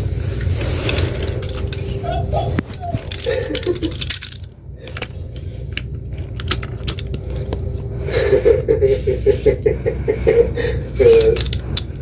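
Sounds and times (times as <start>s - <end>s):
wavering pulsing sound: 0.0s - 6.1s
steady low hum: 0.0s - 12.0s
small hard objects clicking: 0.9s - 7.6s, 11.0s - 12.0s.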